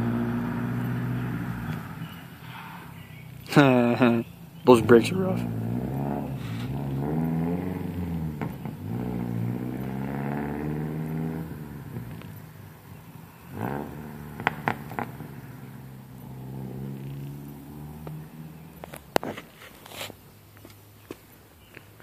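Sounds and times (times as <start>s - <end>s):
car engine accelerating: 0.0s - 19.5s
sharp cracks: 14.3s - 15.2s.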